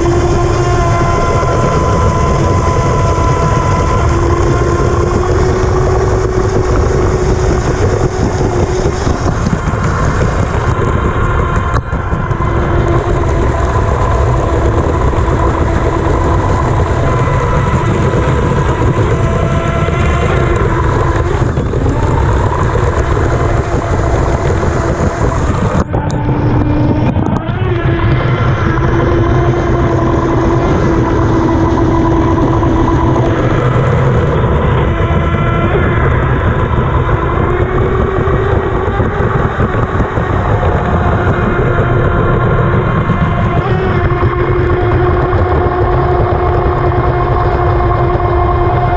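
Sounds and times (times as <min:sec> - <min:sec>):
electric motor whine: 0:00.0 - 0:48.9
rush of water and wind: 0:00.0 - 0:48.9.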